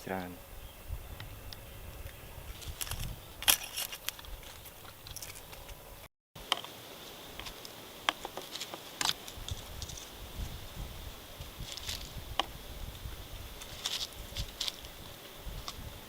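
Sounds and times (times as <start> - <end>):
small clicks and crackles: 1.5 - 5.8, 6.4 - 10.1, 11.6 - 12.6, 13.6 - 15.9.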